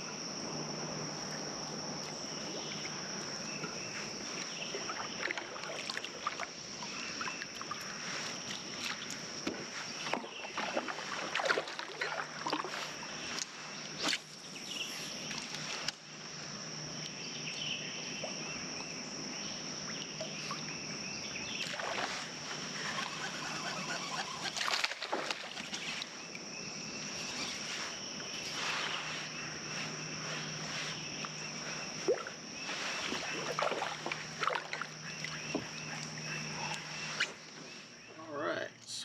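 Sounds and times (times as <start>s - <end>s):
water splashes: 4.3s - 14.3s, 21.6s - 26.3s, 28.5s - 37.4s.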